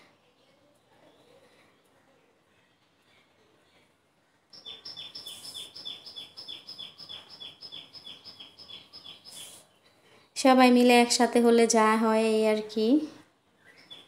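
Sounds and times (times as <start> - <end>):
bird chirping: 4.5 - 10.0, 13.5 - 14.0.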